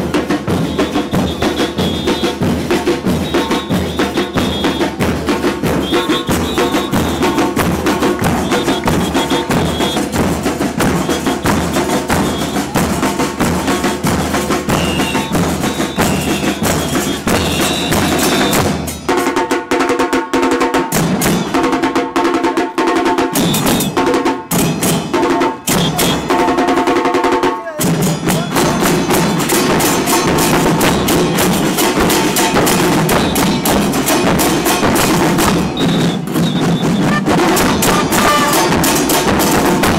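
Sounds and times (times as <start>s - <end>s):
percussion band drumming: 0.0s - 39.9s.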